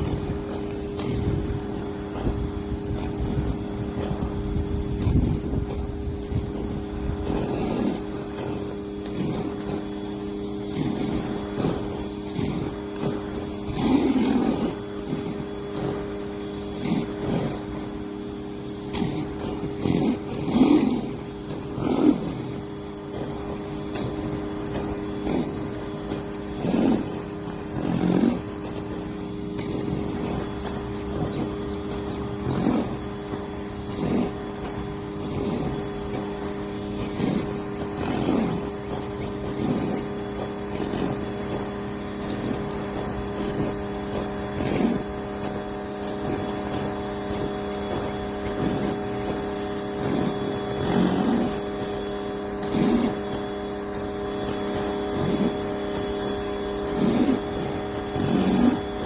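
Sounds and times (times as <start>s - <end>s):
pressure washer running: 0.0s - 59.0s.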